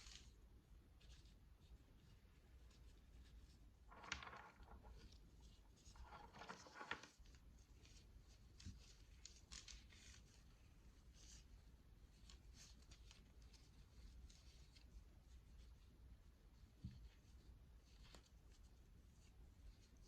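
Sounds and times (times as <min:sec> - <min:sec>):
soft rustling: 0:00.0 - 0:20.0.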